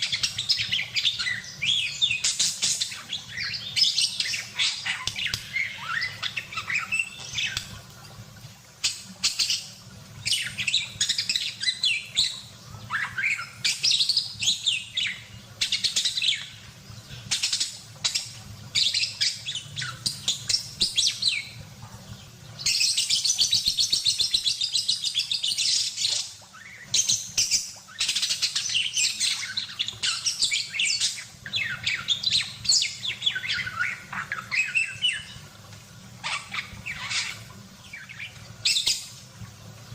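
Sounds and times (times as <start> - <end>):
budgerigar chirping and warbling: 0.0 - 7.7, 10.3 - 13.8, 25.6 - 35.4, 36.2 - 39.0.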